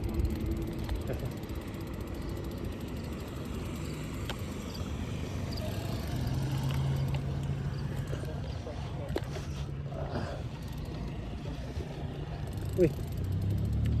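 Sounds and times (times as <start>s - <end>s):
bicycle freewheel ticking: 0.0s - 7.9s, 10.6s - 11.2s, 12.2s - 14.0s.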